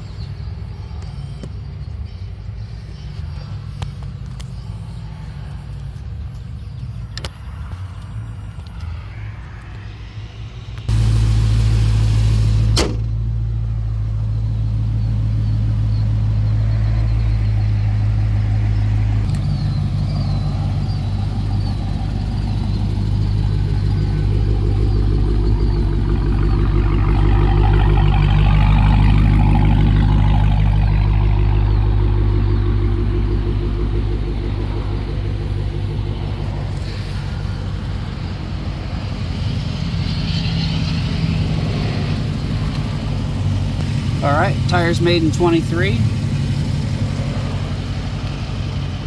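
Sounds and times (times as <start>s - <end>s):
car engine idling: 10.8s - 49.0s.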